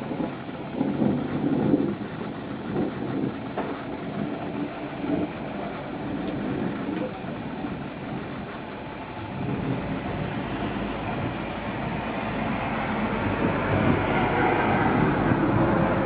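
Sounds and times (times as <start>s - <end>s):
rolling thunder: 0.0s - 16.0s.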